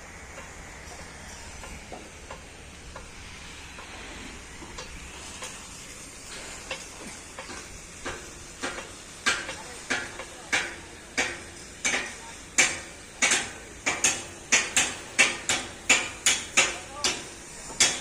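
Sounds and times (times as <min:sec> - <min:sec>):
rain hissing: 0:00.0 - 0:18.0.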